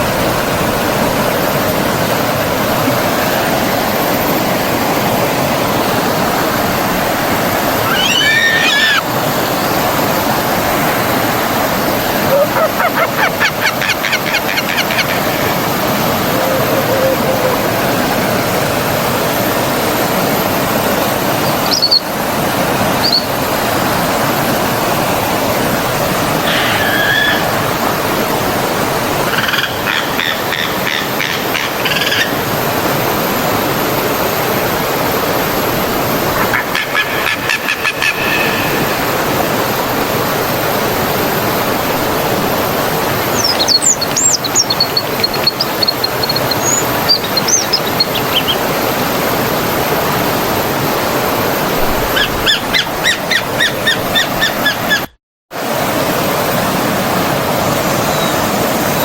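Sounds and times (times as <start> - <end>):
stream water rushing: 0.0 - 55.0, 55.6 - 59.0
small birds chirping: 7.8 - 9.0, 21.4 - 22.1, 43.2 - 48.8.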